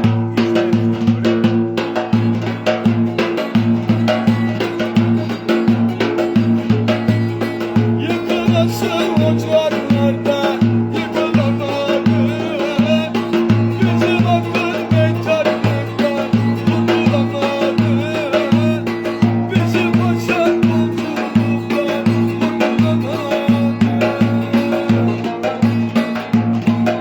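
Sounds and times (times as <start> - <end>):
folk dance music: 0.0 - 27.0.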